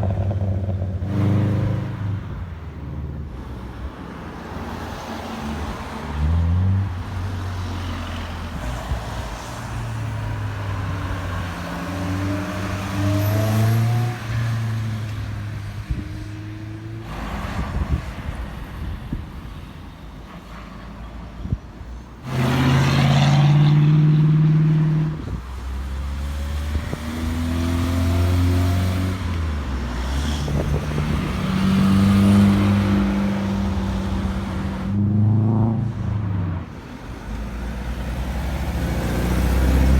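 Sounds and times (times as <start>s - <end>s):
car engines accelerating hard: 0.0s - 18.4s, 22.2s - 39.9s.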